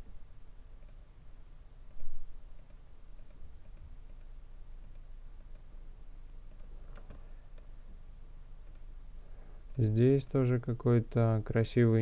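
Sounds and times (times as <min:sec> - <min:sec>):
low steady hum: 0:00.0 - 0:12.0
computer mouse clicks: 0:00.8 - 0:01.0, 0:01.8 - 0:05.8, 0:06.4 - 0:07.8, 0:08.6 - 0:08.9.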